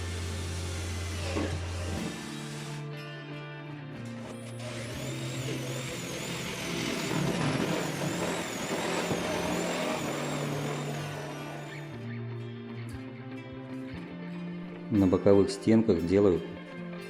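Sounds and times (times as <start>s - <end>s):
power saw cutting plywood: 0.0s - 2.9s, 4.2s - 12.0s
background music: 0.0s - 17.0s.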